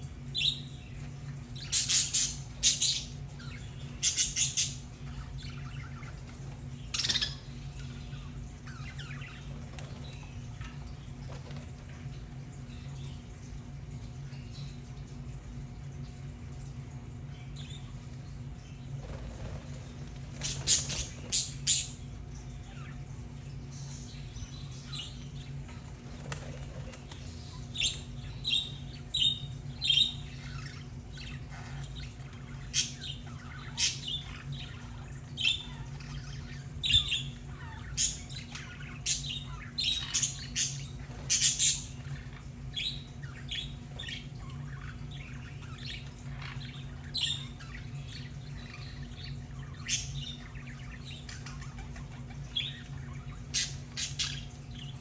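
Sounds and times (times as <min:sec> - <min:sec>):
steady low hum: 0:00.0 - 0:55.0
budgerigars chirping: 0:01.6 - 0:10.6, 0:19.0 - 0:22.0, 0:24.2 - 0:55.0.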